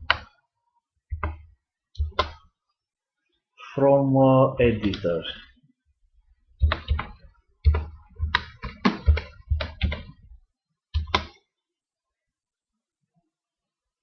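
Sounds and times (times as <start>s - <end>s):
keyboard typing: 0.0s - 0.3s, 6.6s - 10.2s, 10.9s - 11.4s.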